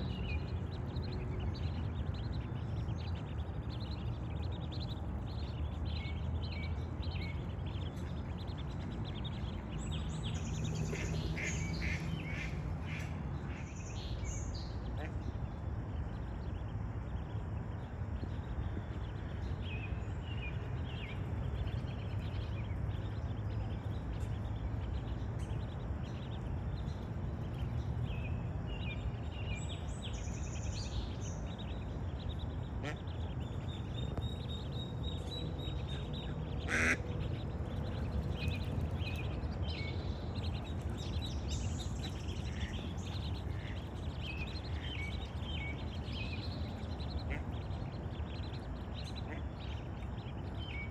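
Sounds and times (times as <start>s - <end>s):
low outdoor rumble: 0.0s - 50.9s
ducks quacking: 10.7s - 13.6s, 35.9s - 38.1s.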